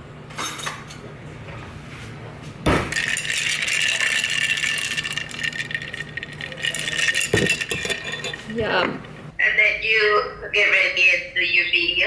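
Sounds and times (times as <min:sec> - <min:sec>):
kitchen appliance whirring and rattling: 0:02.9 - 0:09.3.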